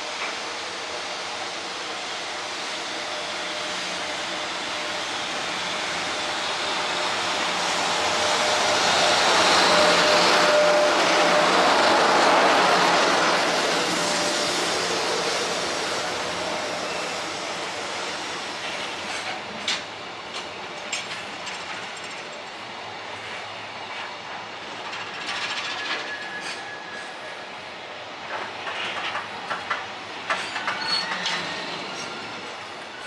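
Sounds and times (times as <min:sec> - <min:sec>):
freight train passing: 0:00.0 - 0:33.0.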